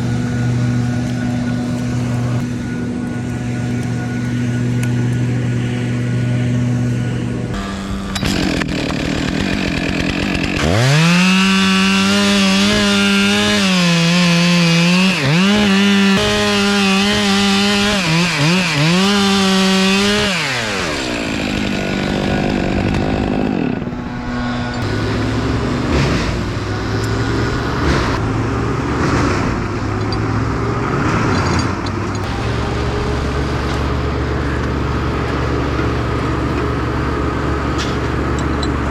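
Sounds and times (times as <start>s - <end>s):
chainsaw cutting wood: 0.0s - 38.9s
chainsaw engine drone: 0.0s - 38.9s.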